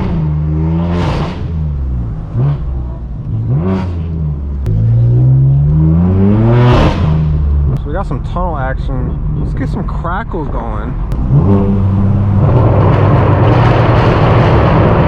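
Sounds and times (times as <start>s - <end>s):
car engine revving hard: 0.0s - 7.8s, 11.1s - 15.0s.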